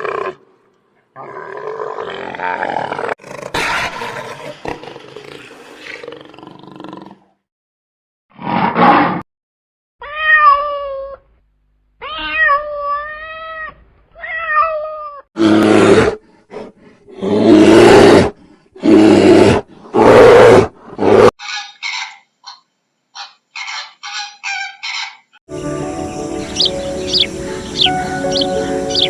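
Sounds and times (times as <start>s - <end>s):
meow-like animal cries: 10.0s - 11.2s, 12.0s - 15.3s
rapid chirping calls: 26.1s - 29.0s.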